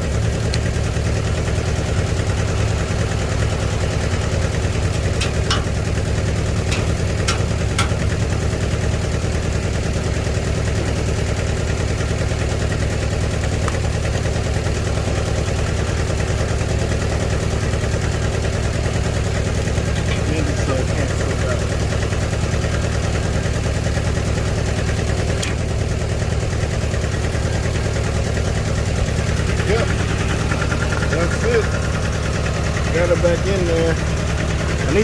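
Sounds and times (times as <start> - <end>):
tractor engine idling: 0.0 - 35.0
sharp metal knocks: 5.0 - 8.4.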